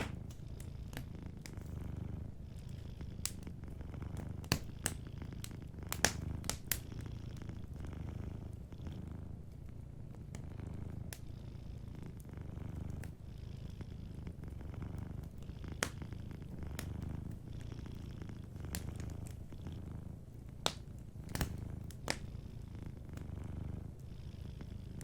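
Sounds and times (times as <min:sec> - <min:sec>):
wood fire crackling: 0:00.0 - 0:08.6, 0:12.1 - 0:13.2, 0:14.2 - 0:22.3
cat purring: 0:00.0 - 0:25.0.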